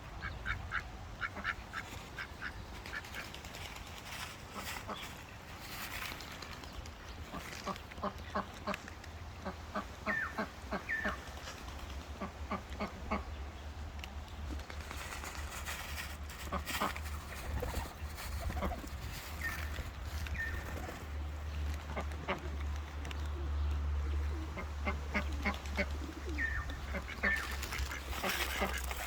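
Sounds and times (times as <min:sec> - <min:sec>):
ducks quacking: 0:00.2 - 0:03.4, 0:04.1 - 0:05.4, 0:07.2 - 0:11.4, 0:12.1 - 0:13.4, 0:15.6 - 0:20.6, 0:24.2 - 0:29.0
small birds chirping: 0:16.5 - 0:21.7, 0:22.7 - 0:29.0.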